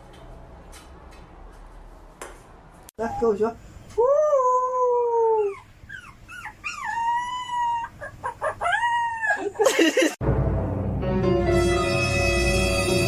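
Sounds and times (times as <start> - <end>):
dog howling: 6.5 - 9.6
horn-like musical tone: 10.9 - 13.0.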